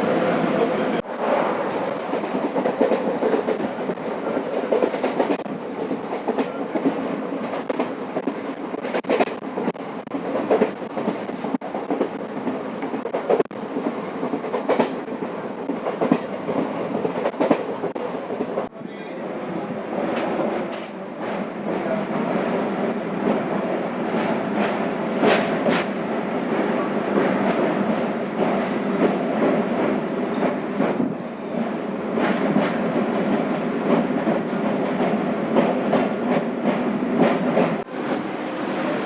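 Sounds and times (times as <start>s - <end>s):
train coach rumble: 0.0s - 39.0s
train wheels clacking over joints: 1.7s - 18.7s, 23.2s - 31.1s, 32.2s - 37.9s.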